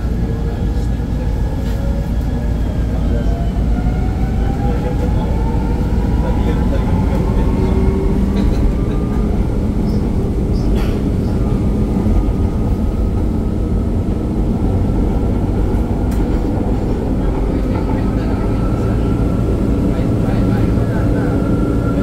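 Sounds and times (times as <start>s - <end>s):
train wheels rumbling on track: 0.0s - 22.0s.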